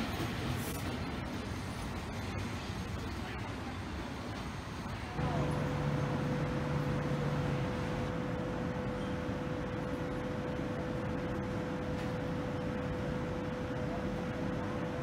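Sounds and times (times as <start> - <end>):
electric train hum: 0.0 - 15.0.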